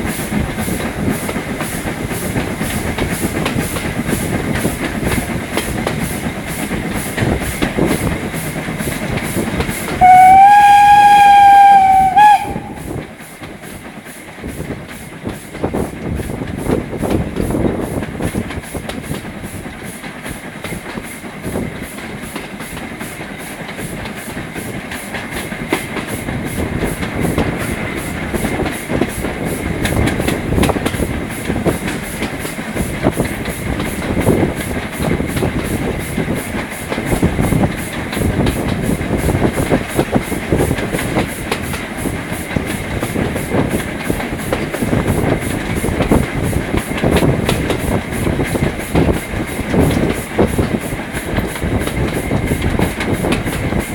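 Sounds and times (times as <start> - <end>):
train wheels knocking over rail joints: 0.0 - 53.9
train whistle blast: 10.0 - 13.0.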